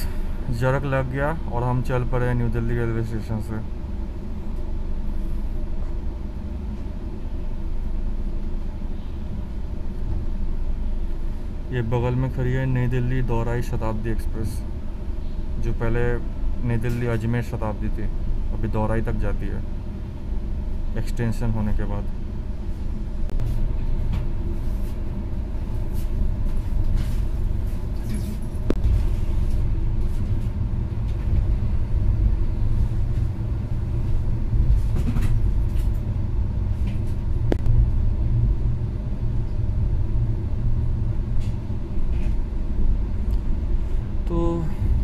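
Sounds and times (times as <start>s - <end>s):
train coach low rumble: 0.0s - 45.0s.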